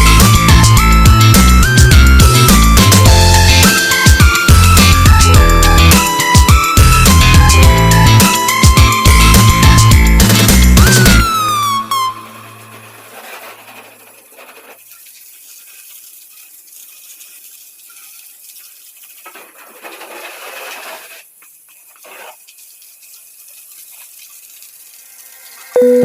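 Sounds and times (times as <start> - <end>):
car wash water spray hiss: 13.9 - 19.6, 21.2 - 25.8.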